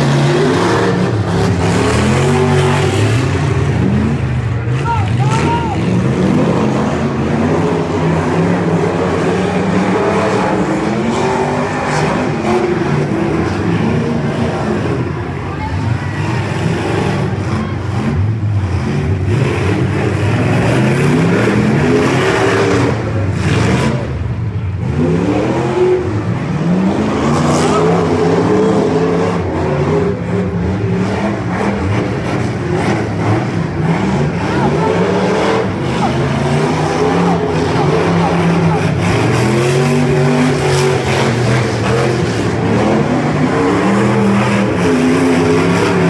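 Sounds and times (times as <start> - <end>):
car engines revving: 0.0 - 46.0.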